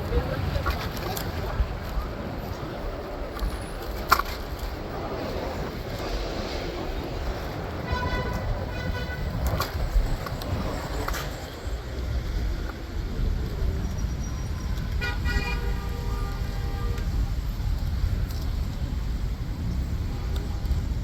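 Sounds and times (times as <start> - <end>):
street traffic rumble: 0.0 - 21.0
vehicle horn: 7.8 - 9.6, 14.8 - 17.2.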